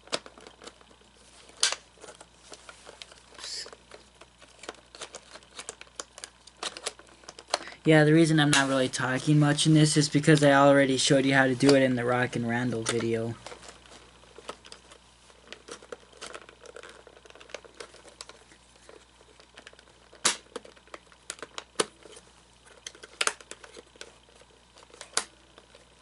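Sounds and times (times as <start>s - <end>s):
plastic gear clicks and knocks: 0.0s - 2.3s, 2.9s - 7.7s, 14.4s - 25.9s.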